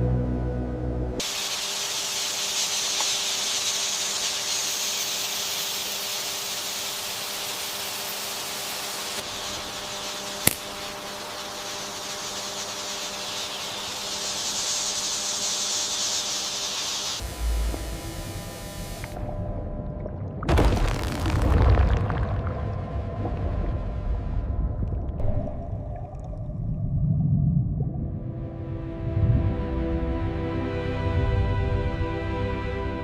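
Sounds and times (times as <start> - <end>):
rainforest ambience hiss: 1.2 - 19.2
sharp click: 10.4 - 10.7.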